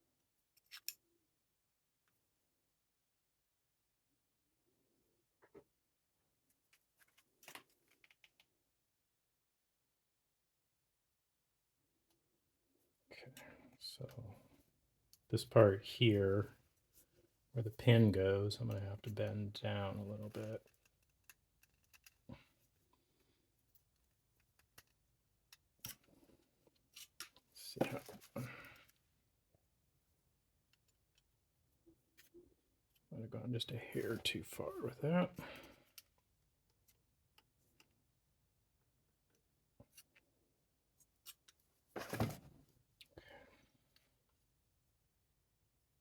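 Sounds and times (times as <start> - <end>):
pliers clicking and scratching metal: 0.6 - 1.0, 20.4 - 22.3.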